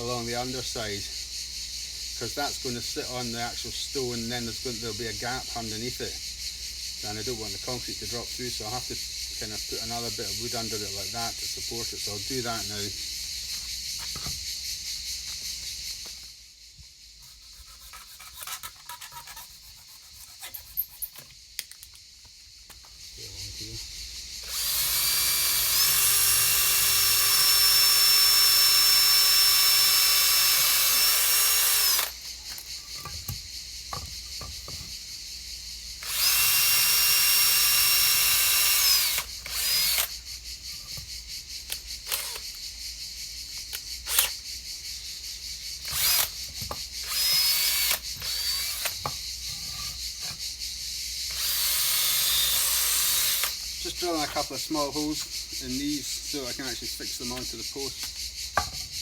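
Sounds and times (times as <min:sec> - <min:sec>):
handling clicks of wood and tools: 0:20.4 - 0:23.0, 0:30.4 - 0:34.9, 0:38.0 - 0:42.6, 0:43.5 - 0:44.4, 0:45.8 - 0:50.4, 0:57.0 - 0:59.0
power drill whining: 0:24.4 - 0:34.0, 0:36.0 - 0:40.2, 0:41.7 - 0:42.5, 0:44.0 - 0:44.4, 0:45.8 - 0:50.4, 0:51.3 - 0:54.4.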